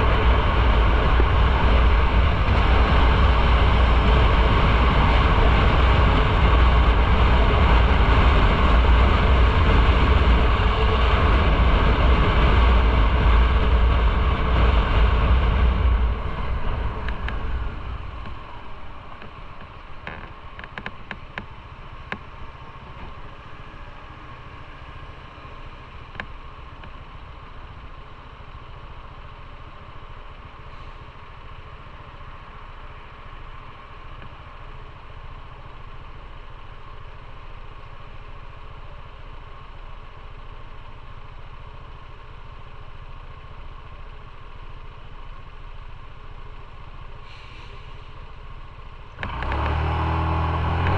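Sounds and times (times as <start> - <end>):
wind noise: 0.0 - 21.4
motorcycle engine: 0.0 - 50.9
motorcycle engine idling: 0.0 - 50.9.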